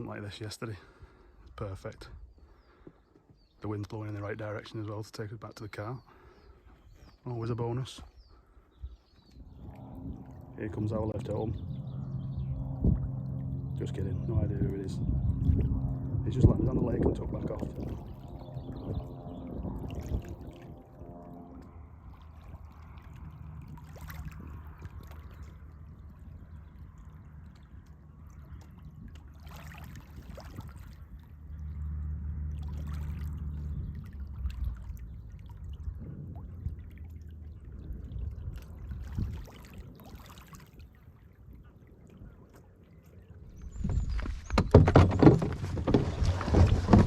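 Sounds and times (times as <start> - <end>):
steady low rumble: 8.4 - 39.5
paddles splashing in water: 22.0 - 25.8, 26.9 - 35.8, 38.5 - 41.3, 42.6 - 47.0.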